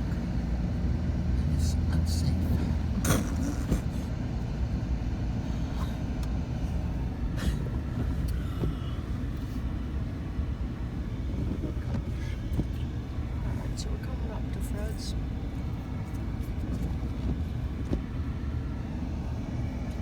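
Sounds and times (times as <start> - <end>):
pickup truck driving on snow: 0.0 - 20.0.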